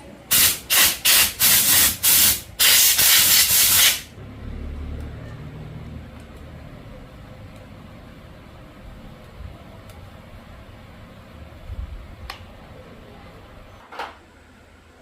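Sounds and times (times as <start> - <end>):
hissing spray jet: 0.3 - 4.1.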